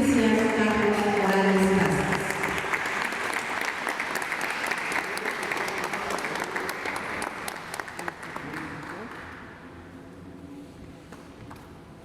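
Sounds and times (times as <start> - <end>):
audience applauding: 0.4 - 9.3.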